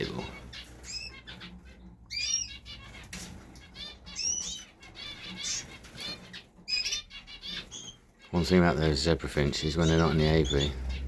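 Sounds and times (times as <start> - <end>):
wings fluttering: 0.0 - 8.2
cage birds chirping: 0.0 - 11.0.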